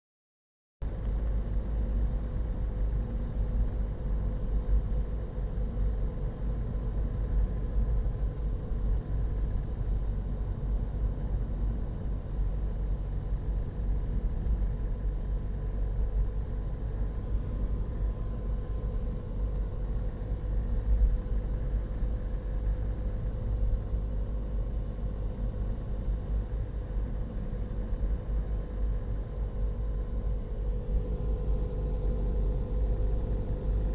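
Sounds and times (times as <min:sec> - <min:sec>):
low rumble inside car cabin: 0:00.8 - 0:33.9
faint steady hum: 0:00.9 - 0:33.9.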